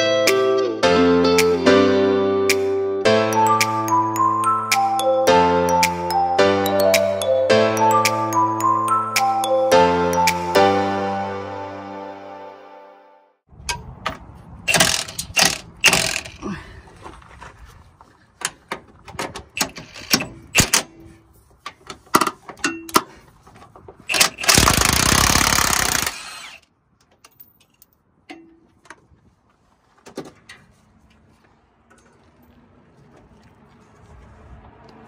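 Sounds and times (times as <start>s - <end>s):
power tool burst: 14.7s - 16.4s, 24.1s - 26.6s.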